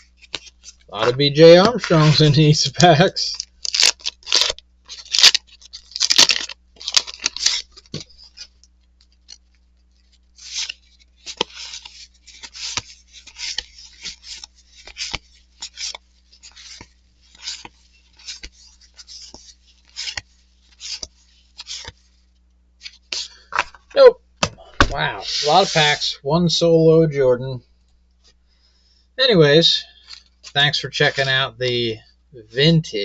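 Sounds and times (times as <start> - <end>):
cards sliding off a stack: 10.4 - 22.0.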